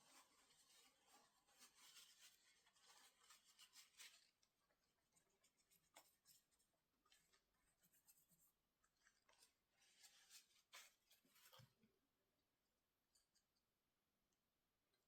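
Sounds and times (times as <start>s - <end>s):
faint scratching: 0.0s - 11.8s.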